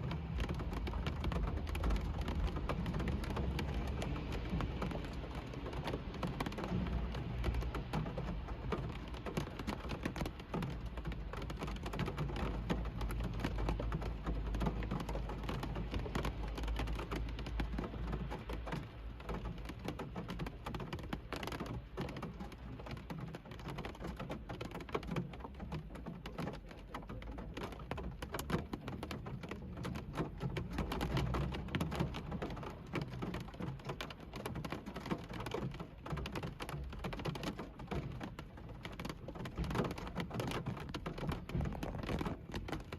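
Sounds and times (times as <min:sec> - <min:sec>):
rain drumming on car roof: 0:00.0 - 0:42.9.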